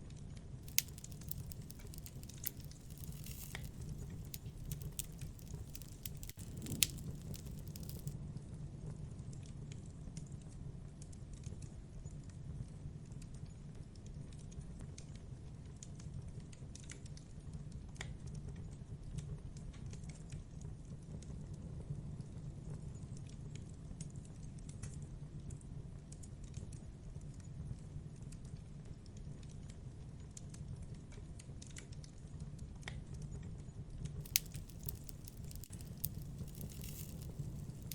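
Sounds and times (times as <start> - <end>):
campfire wood crackling: 0.6 - 8.2, 34.2 - 37.9
low rumble of fire: 0.6 - 8.2, 34.2 - 37.9
sharp pops: 0.7 - 8.1, 34.2 - 37.9.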